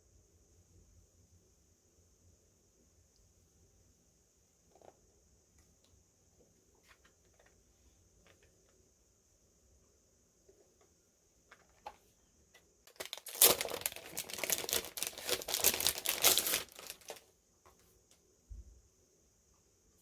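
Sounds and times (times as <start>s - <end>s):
packaging crinkling: 12.8s - 17.3s.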